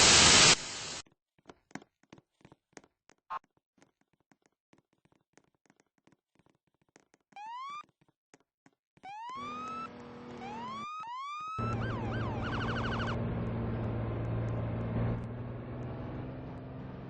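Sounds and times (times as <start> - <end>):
fire truck electronic siren: 7.4 - 7.8, 9.0 - 15.3
low engine drone: 11.6 - 17.0.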